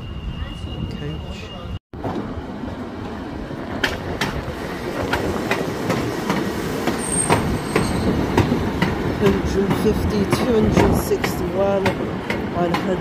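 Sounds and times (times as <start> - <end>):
high-pitched squeal: 0.0 - 1.8
train low rumble: 0.0 - 13.0.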